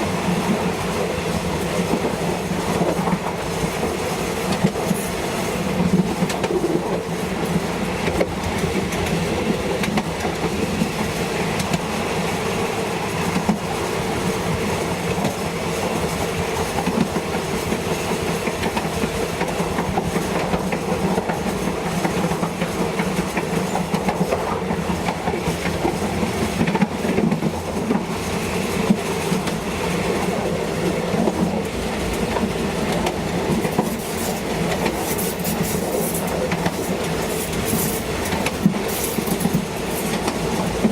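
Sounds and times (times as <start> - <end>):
train rumbling: 0.0 - 40.9
wheels clicking over rail joints: 15.1 - 40.9.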